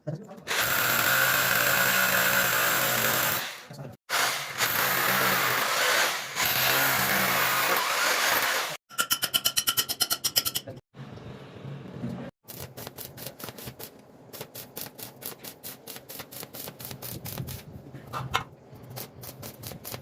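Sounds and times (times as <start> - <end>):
power tool running: 0.5 - 8.8.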